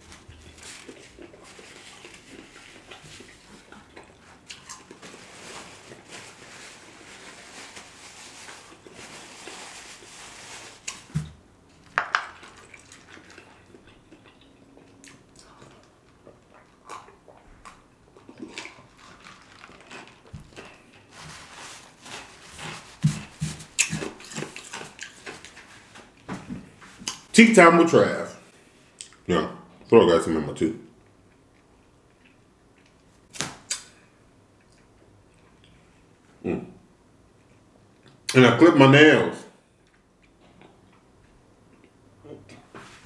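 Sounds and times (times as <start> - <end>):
person chewing: 0.2 - 5.2, 12.4 - 21.1, 22.1 - 26.3.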